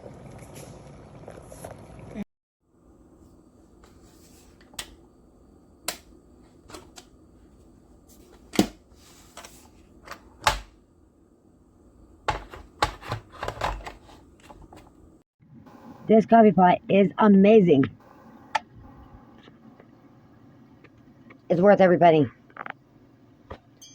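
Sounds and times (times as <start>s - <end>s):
electric kettle humming: 2.6s - 16.1s.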